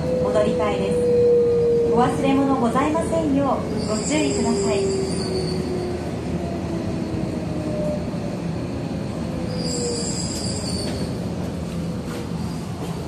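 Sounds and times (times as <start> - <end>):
train running gear rumble: 2.6 - 13.0
high squeal: 3.7 - 5.9, 9.4 - 11.2.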